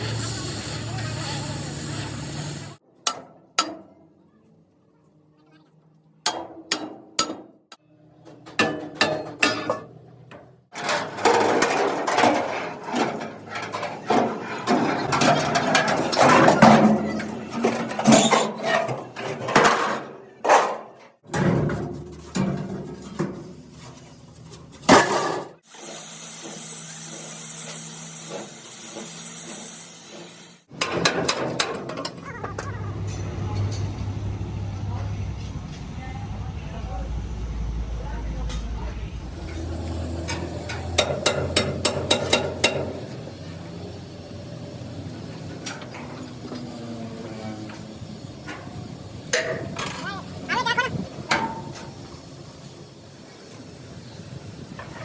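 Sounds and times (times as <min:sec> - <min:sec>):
dense metal clattering: 0:10.7 - 0:25.6.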